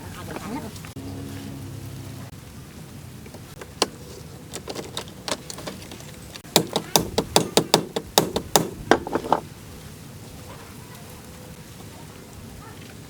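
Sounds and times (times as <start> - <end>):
hammer blows: 6.4 - 9.4.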